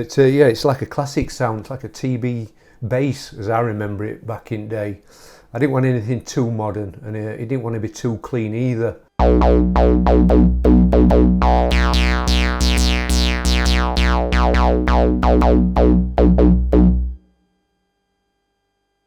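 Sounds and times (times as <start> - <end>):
synth bass riff: 9.2 - 17.2.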